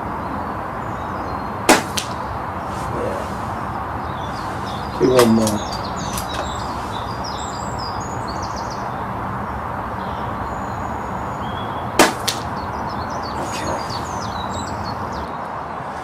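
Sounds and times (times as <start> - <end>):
steady background noise: 0.0 - 16.0
air rifle shot: 1.7 - 2.2, 12.0 - 12.5.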